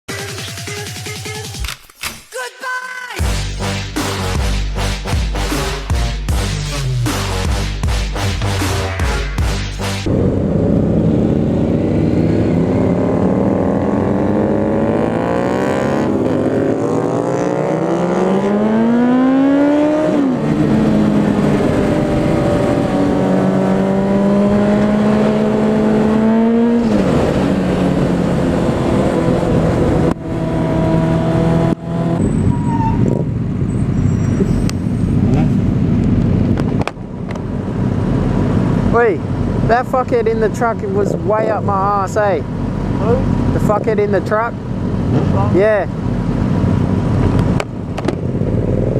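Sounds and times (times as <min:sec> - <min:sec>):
motorcycle engine accelerating: 0:03.3 - 0:39.8, 0:44.6 - 0:48.9
wind and road noise: 0:10.0 - 0:48.9.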